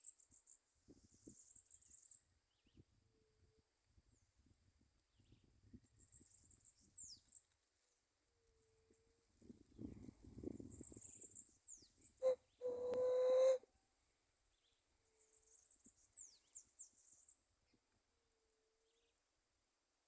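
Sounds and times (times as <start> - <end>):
small birds chirping: 5.2 - 7.5, 10.4 - 13.6
dove cooing: 12.2 - 13.6.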